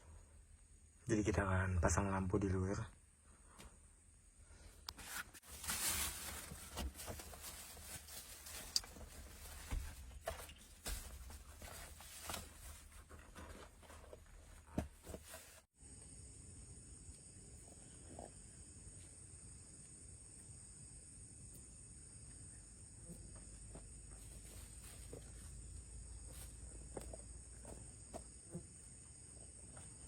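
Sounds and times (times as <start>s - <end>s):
rustling: 5.0s - 15.7s, 24.1s - 27.8s.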